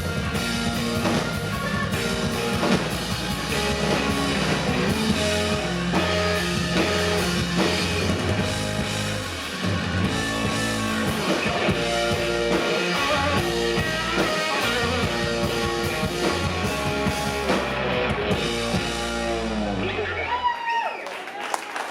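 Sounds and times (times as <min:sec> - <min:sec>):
drum kit beat: 0:00.0 - 0:19.9
electric guitar notes: 0:00.0 - 0:20.4
live rock band playing: 0:00.0 - 0:20.5.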